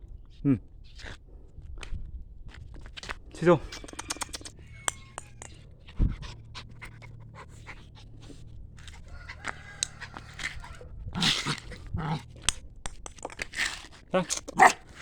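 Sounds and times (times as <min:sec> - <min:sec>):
puppy panting: 0:03.6 - 0:12.6, 0:14.4 - 0:15.0.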